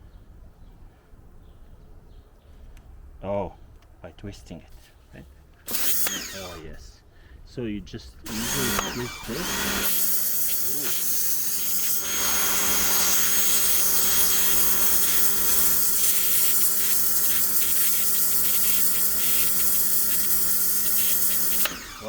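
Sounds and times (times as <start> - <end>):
water jet hissing: 5.7 - 6.7, 8.3 - 22.0
pressure washer motor hum: 5.7 - 6.8, 8.2 - 22.0.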